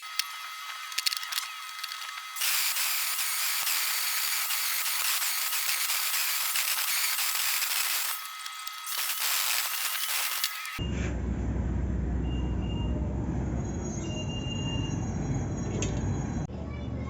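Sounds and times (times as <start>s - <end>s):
welding arc crackling: 0.0s - 10.8s.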